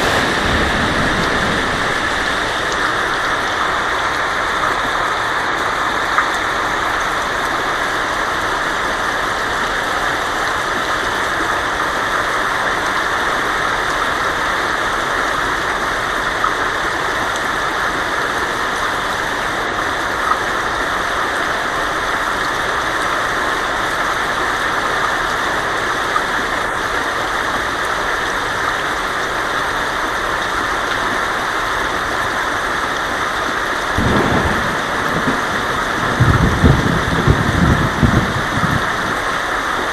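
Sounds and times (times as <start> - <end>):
thunder rumble: 0.0 - 4.9, 33.9 - 39.6
heavy rain on a tin roof: 0.0 - 39.9.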